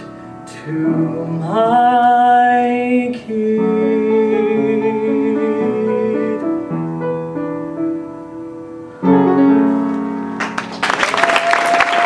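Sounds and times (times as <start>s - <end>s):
piano chords: 0.0s - 12.0s
applause: 10.4s - 12.0s.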